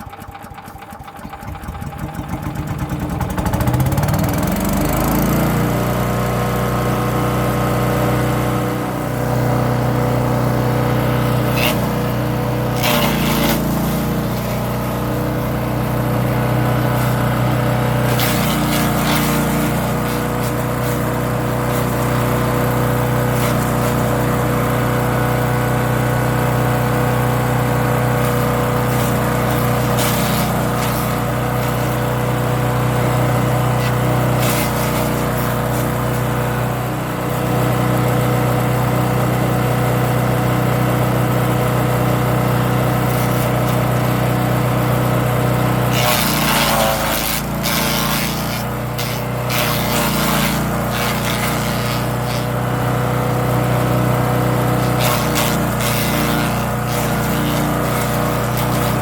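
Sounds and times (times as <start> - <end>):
wood chipper engine running: 0.0 - 59.0
rough chipping: 11.0 - 24.5, 28.0 - 36.6, 45.7 - 52.8, 54.2 - 59.0.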